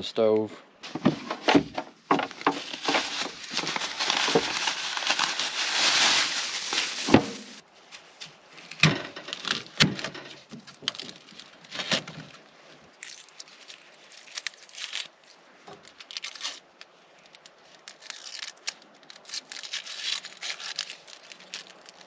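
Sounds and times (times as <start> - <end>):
rustling hiss: 2.3 - 8.4.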